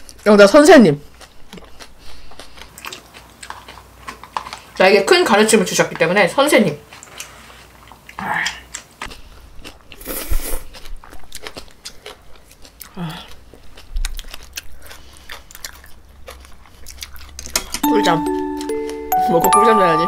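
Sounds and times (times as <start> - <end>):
person chewing: 0.0 - 4.8, 6.8 - 19.1.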